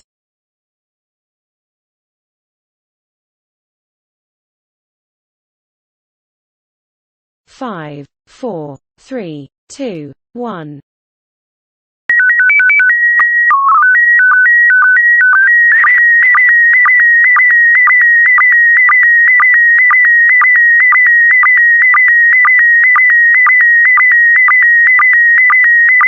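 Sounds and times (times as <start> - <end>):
low code burst: 12.1 - 26.0.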